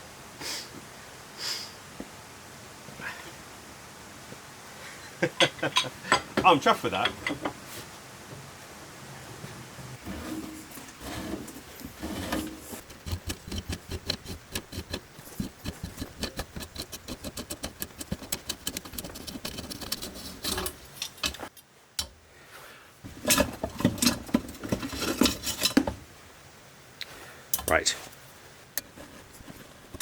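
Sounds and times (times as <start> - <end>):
metal parts knocking and clattering: 11.8 - 21.5, 23.1 - 26.0
rapid metallic clicking: 12.8 - 21.4.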